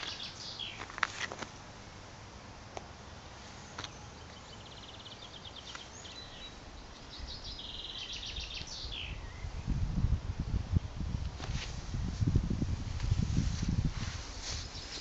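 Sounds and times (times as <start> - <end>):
bird trill: 0.0 - 0.8, 3.9 - 9.5
birds chirping: 0.0 - 1.8, 3.0 - 9.8, 14.5 - 15.0
faint background hiss: 0.0 - 15.0.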